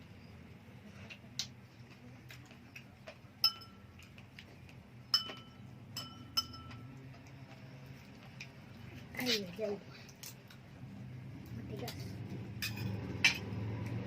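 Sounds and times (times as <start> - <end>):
cutlery clinking on tableware: 3.4 - 3.8, 5.1 - 6.9, 11.9 - 13.5.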